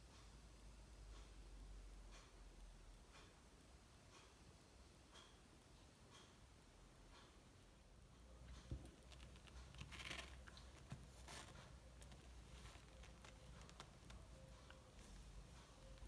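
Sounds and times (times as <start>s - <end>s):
faint rustling: 8.6s - 16.0s.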